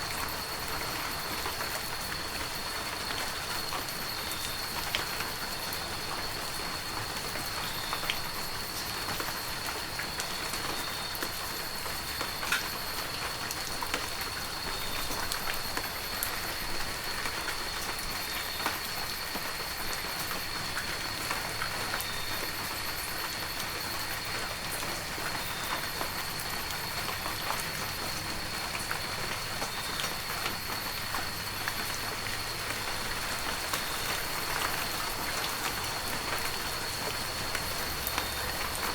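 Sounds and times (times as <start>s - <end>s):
heavy rain falling: 0.0s - 38.9s
sharp raindrop ticks: 12.0s - 12.9s.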